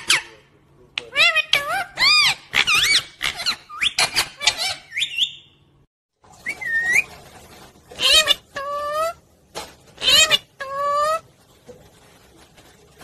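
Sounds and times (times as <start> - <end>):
parrot squawking and whistling: 1.1 - 5.6, 6.4 - 7.1, 8.0 - 9.2, 10.0 - 11.2.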